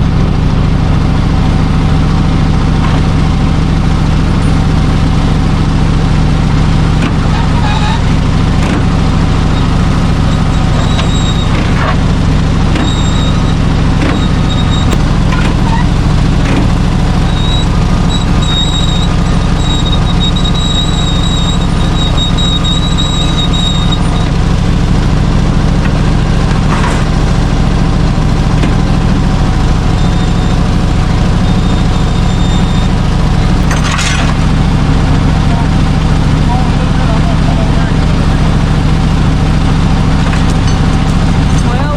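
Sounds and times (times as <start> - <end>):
truck engine running: 0.0 - 41.9
thin high squeal: 7.3 - 8.1, 10.3 - 11.6, 12.8 - 15.0, 17.2 - 24.3.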